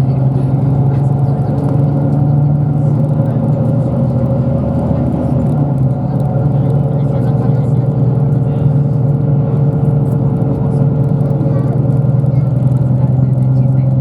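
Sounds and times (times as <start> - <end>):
bus engine humming inside cabin: 0.0 - 14.0.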